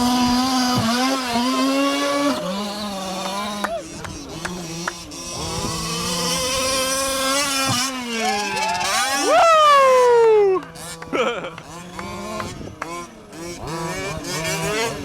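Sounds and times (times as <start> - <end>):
small two-stroke engines revving: 0.0 - 15.0.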